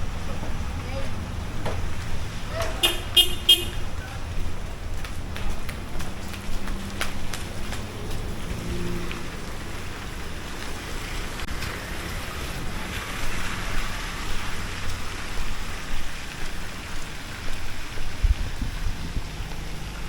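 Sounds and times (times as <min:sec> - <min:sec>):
low engine rumble: 0:00.0 - 0:20.0
rain hissing on street: 0:00.0 - 0:20.0.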